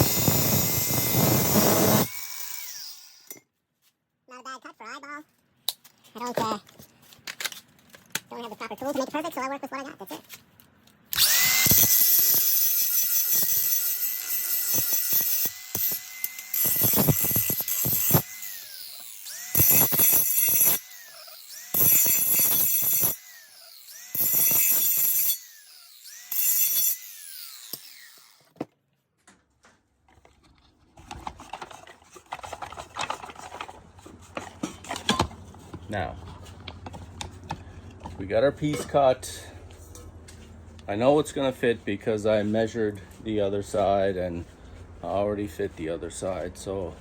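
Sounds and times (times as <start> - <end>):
power tool motor whine on steel pipe: 0.0 - 3.3, 11.2 - 28.4.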